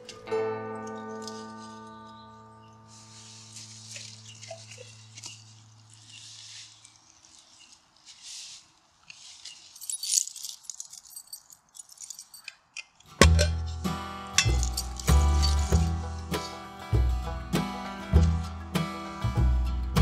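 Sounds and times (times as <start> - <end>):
held music chord: 0.0 - 5.9, 13.3 - 20.0
light rustling and rattling: 3.2 - 13.6
small sharp clinks: 9.2 - 13.7, 14.4 - 15.8.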